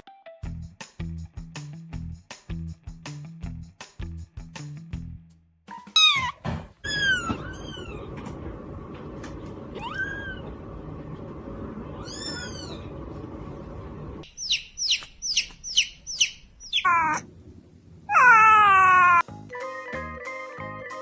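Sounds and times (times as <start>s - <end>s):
cat meowing: 6.0s - 8.2s, 9.7s - 10.5s, 11.9s - 13.0s, 16.7s - 17.2s, 18.1s - 19.2s.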